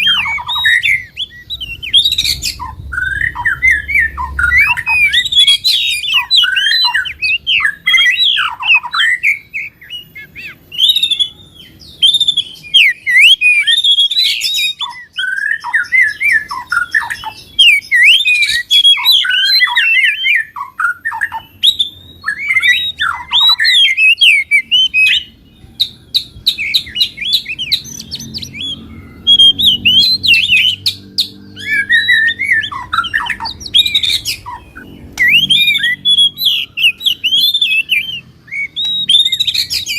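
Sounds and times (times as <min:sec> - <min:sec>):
songbirds chattering song: 0:00.0 - 0:39.9.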